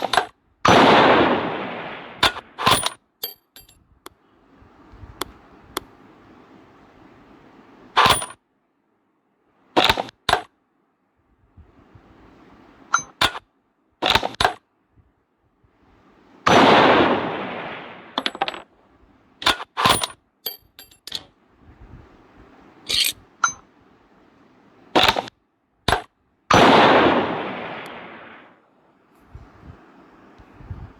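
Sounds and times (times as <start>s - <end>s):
loud gunshots: 0.7s - 2.9s, 16.5s - 18.2s, 26.5s - 28.4s.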